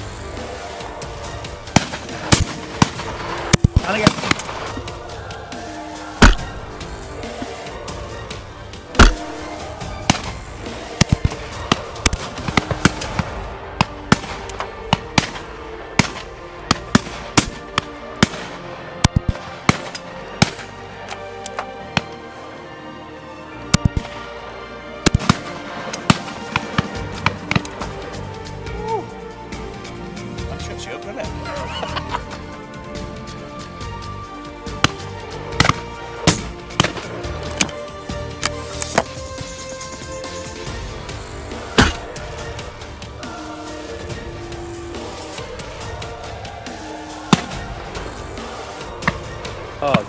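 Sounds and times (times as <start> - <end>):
background music: 0.0 - 50.0
shotguns firing: 1.7 - 4.9, 6.2 - 6.6, 9.0 - 20.8, 23.8 - 24.2, 25.1 - 27.8, 34.8 - 37.8, 41.8 - 42.2, 47.3 - 47.8
shotgun shots: 1.8 - 4.7, 6.2 - 6.6, 9.0 - 9.4.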